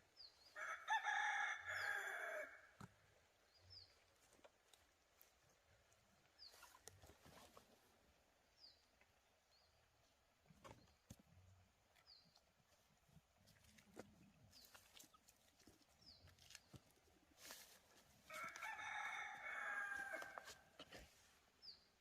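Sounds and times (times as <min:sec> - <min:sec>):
rooster crowing: 0:00.6 - 0:02.7, 0:18.3 - 0:20.6.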